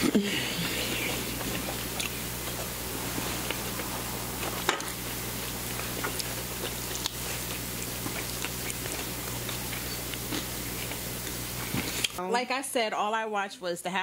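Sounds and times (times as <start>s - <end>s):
low electrical hum and hiss: 0.0s - 14.0s
chewing and biting: 0.7s - 2.7s, 4.8s - 12.2s.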